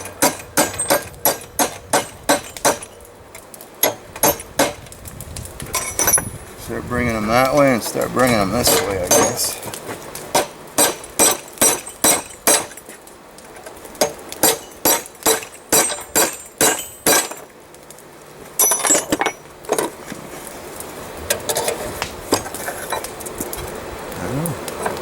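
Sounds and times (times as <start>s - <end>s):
hammer striking chisel on steel: 0.0s - 2.9s, 8.6s - 9.6s, 14.4s - 17.4s.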